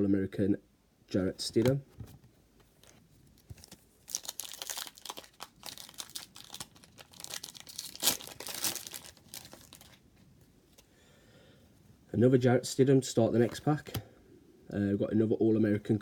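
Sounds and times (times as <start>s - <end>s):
card pack wrapper tearing: 3.4s - 10.0s.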